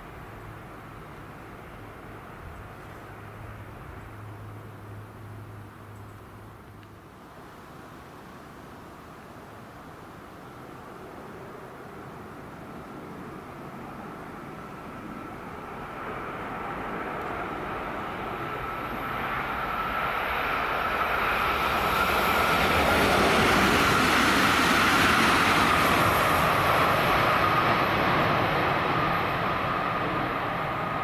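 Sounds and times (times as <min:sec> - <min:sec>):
steady train whine: 0:00.0 - 0:06.6, 0:09.9 - 0:31.0
electric train passing: 0:10.9 - 0:31.0.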